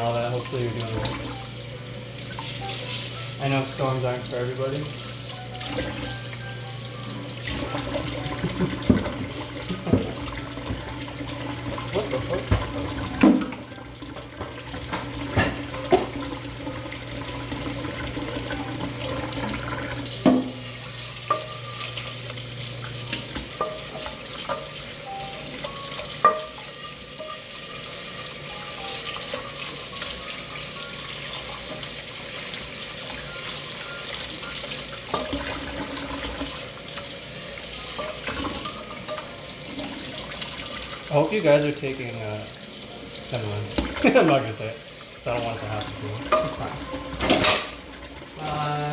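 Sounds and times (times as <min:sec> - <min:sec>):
tap running into a sink: 0:00.1 - 0:24.8, 0:43.3 - 0:44.4, 0:45.3 - 0:48.3
dishes clinking and knocking: 0:07.6 - 0:11.0, 0:11.8 - 0:16.4, 0:20.2 - 0:20.6, 0:23.6 - 0:27.5, 0:46.2 - 0:47.9.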